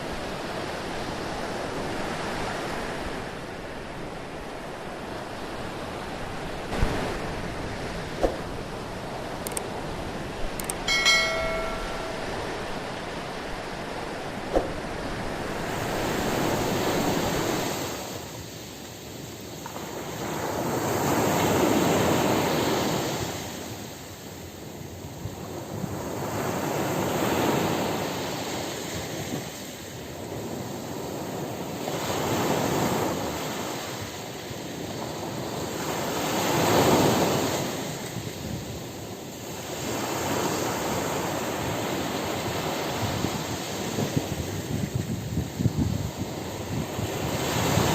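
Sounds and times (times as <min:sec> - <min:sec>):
sea waves washing onto shore: 0:00.0 - 0:47.9
short ringing ping: 0:10.6 - 0:12.9.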